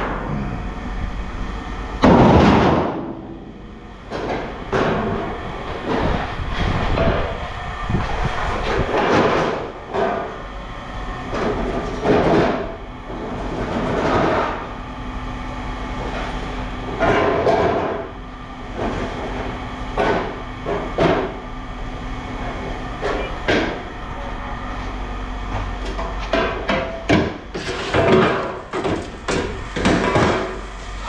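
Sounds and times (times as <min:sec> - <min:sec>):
scrap metal clanking: 0:26.2 - 0:31.0.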